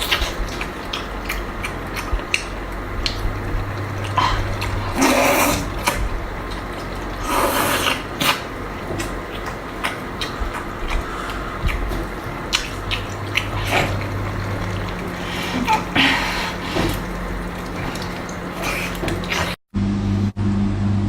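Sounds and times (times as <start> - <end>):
wet mouth clicks from chewing: 0.0 - 15.2
slurping: 0.0 - 19.6.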